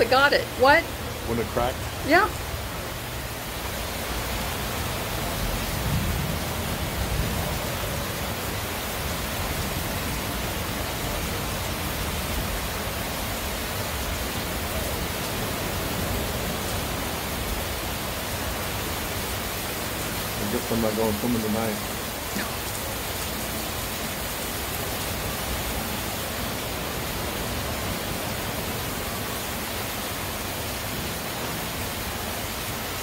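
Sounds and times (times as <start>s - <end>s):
heavy rain hissing: 0.0s - 33.0s.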